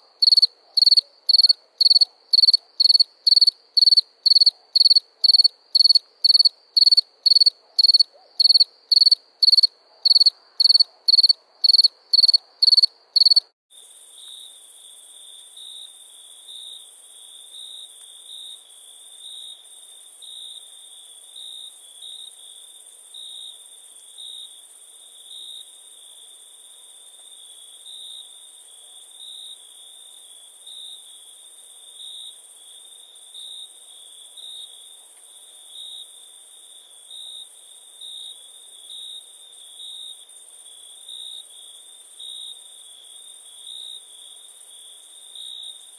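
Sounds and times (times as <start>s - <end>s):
soft pulsing insect trill: 0.2s - 18.6s
loud cricket chirps: 0.2s - 45.9s.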